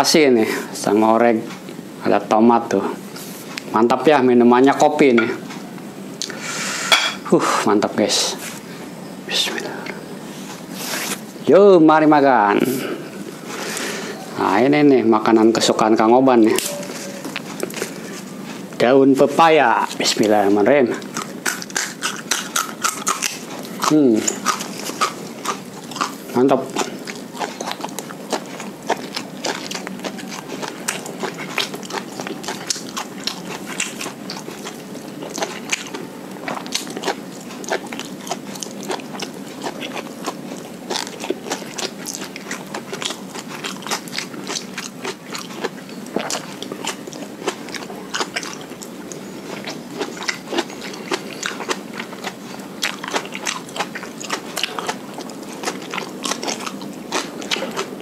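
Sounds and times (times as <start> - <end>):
person chewing wet food: 12.2 - 58.0.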